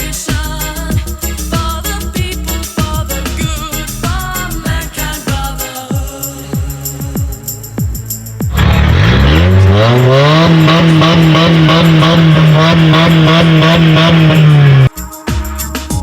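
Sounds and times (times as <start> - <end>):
car engine revving: 8.2 - 14.9.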